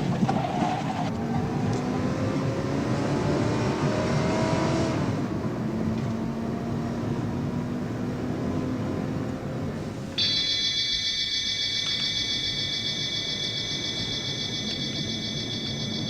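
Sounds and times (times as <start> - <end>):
car engine revving hard: 1.2 - 9.7.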